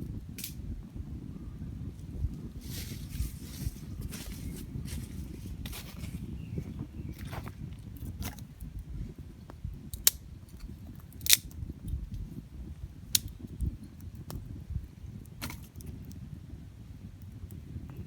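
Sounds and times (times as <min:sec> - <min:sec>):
campfire crackling and popping: 0:00.0 - 0:00.9, 0:07.8 - 0:18.0.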